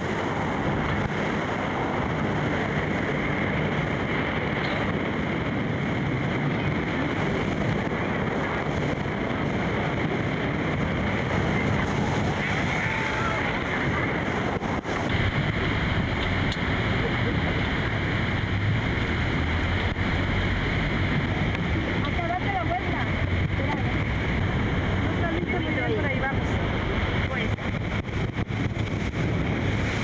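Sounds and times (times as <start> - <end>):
rushing falling water: 0.0 - 30.0
wind buffeting microphone: 0.0 - 30.0.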